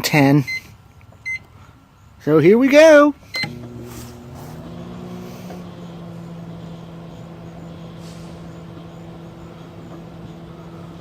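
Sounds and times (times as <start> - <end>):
microwave oven humming: 3.4 - 11.0.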